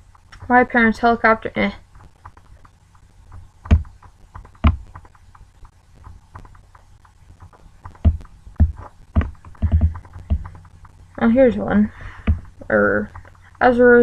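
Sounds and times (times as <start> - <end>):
light clicks and taps on laptop: 2.0 - 11.0
loud knocks on laptop: 3.7 - 3.9.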